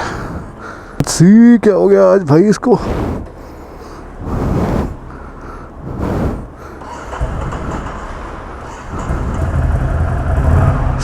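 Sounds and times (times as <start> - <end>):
motorcycle engine running: 5.0 - 11.0
motorcycle starter bursts: 6.5 - 10.4.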